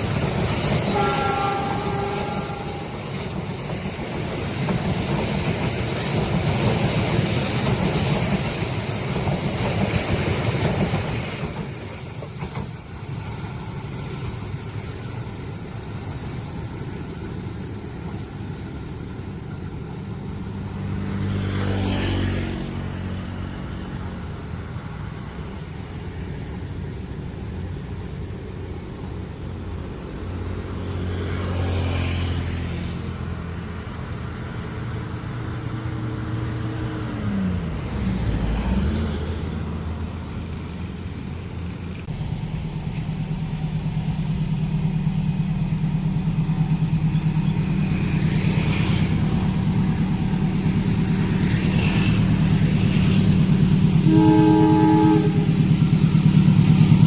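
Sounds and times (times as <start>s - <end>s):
motor vehicles passing: 19.9s - 25.0s, 30.2s - 42.0s, 46.1s - 57.0s.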